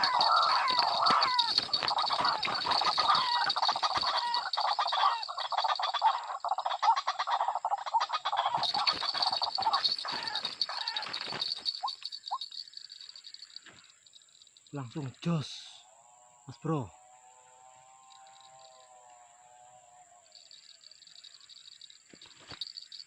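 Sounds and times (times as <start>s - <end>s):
chattering wild animal calls: 0.0s - 15.8s, 17.8s - 23.0s.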